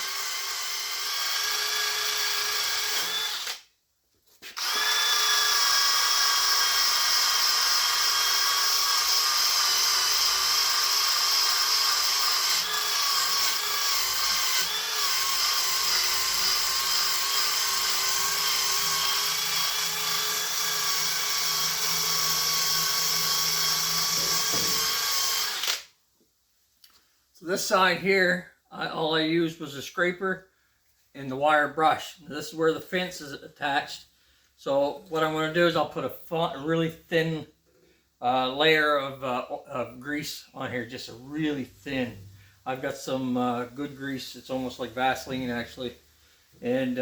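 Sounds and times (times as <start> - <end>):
drill wire wheel scrubbing metal: 4.5 - 25.8.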